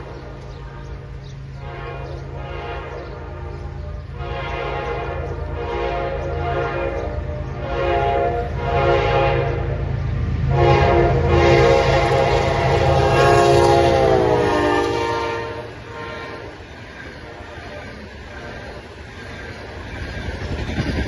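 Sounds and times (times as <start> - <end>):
locomotive horn blasts: 0.0 - 18.0
train rumbling: 0.0 - 21.0.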